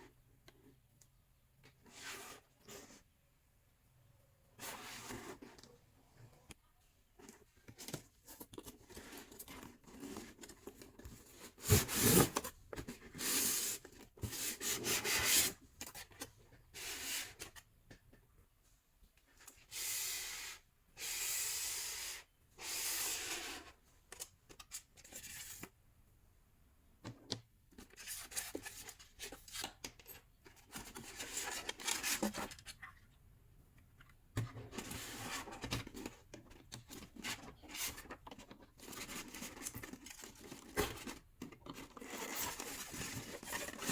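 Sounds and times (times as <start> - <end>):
packaging rustling and scraping: 7.2 - 17.5, 27.8 - 32.9, 34.6 - 43.9.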